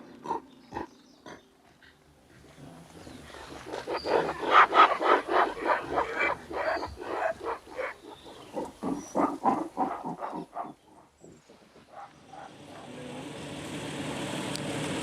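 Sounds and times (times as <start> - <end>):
rapid animal calls: 2.9 - 12.8.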